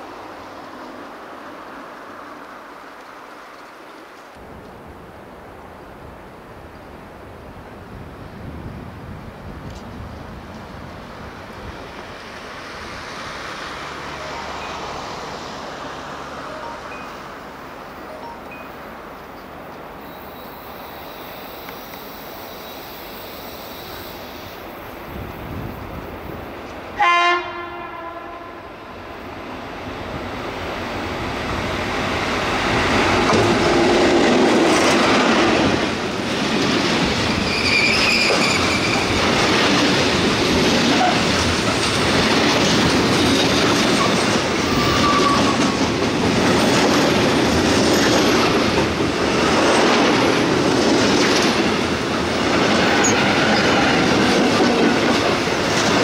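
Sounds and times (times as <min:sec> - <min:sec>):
freight train passing: 0:00.0 - 0:56.0
train horn blast: 0:27.0 - 0:28.9
wheels clacking over rail joints: 0:31.6 - 0:56.0
high wheel squeals: 0:37.4 - 0:39.2, 0:43.9 - 0:45.7.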